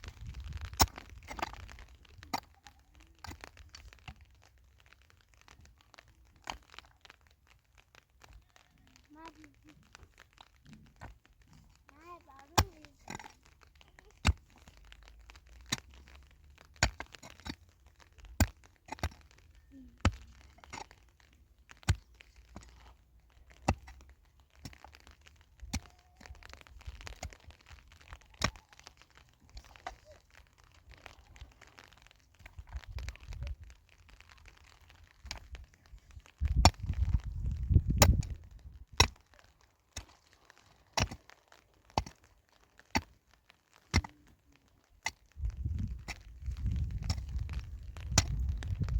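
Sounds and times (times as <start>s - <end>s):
sharp knocks and cracks: 0.0s - 48.9s.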